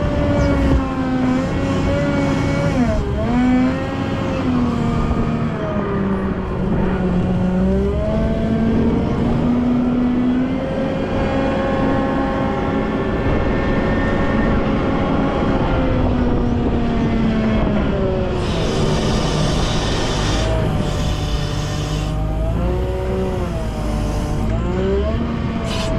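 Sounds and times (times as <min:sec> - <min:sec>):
diesel engine working: 0:00.0 - 0:25.9
hiss: 0:18.4 - 0:22.2.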